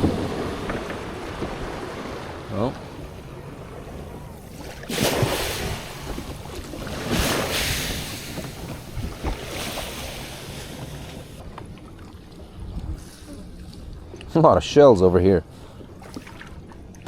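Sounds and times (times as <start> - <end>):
rushing water: 0.0 - 12.4
wind: 0.0 - 17.0.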